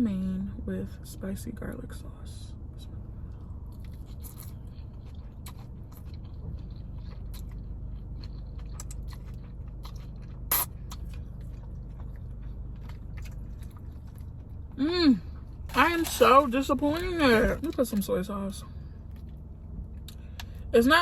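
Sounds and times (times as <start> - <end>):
chewing: 3.3 - 18.0.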